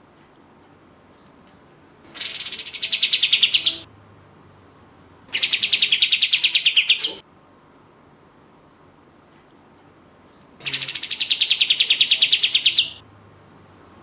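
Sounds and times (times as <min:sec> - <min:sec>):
songbird rapid trill: 0:02.2 - 0:03.9, 0:05.4 - 0:07.2, 0:10.6 - 0:13.0.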